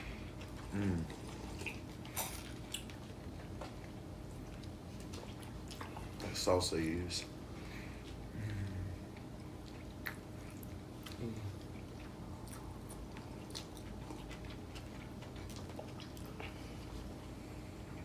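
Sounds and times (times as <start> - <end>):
people chewing food: 0.0 - 18.0.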